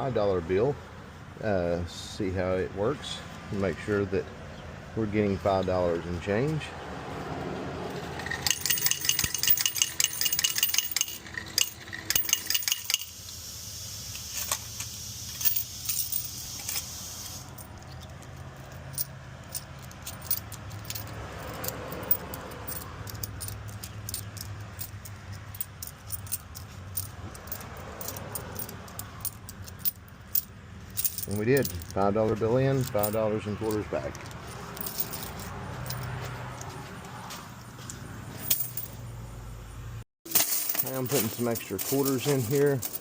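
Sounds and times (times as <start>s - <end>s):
coins clinking: 8.0s - 13.3s, 14.2s - 36.7s, 38.4s - 39.0s, 40.3s - 43.0s
coins clattering into tray: 8.1s - 13.2s, 14.2s - 31.9s, 32.8s - 36.1s, 38.4s - 38.9s, 40.3s - 43.0s.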